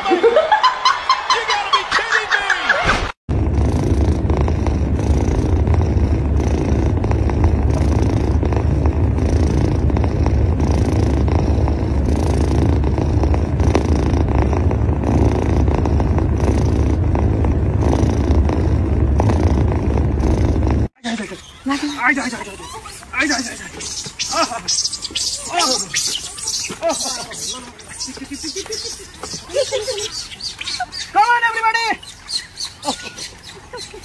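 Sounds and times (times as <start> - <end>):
kitten purring: 3.3 - 20.9.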